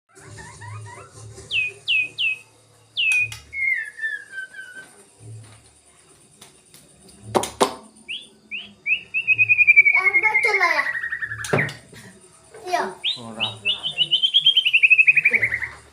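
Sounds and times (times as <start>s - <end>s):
bird whistling: 0.1s - 5.0s, 8.0s - 11.8s, 13.0s - 15.9s.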